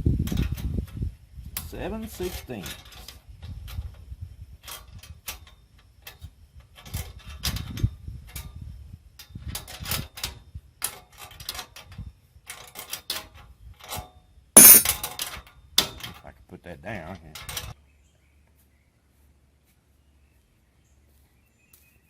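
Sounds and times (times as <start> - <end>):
wrench clicking on metal bolts: 14.6 - 14.9.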